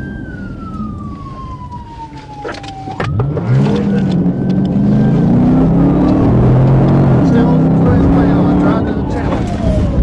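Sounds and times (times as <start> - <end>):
police siren wailing: 0.0 - 10.0
vehicle engine revving hard: 3.2 - 9.0.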